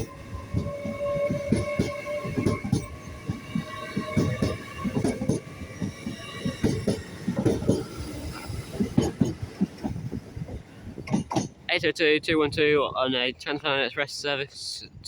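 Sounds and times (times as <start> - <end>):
train wheels clattering over rail joints: 0.0 - 11.7.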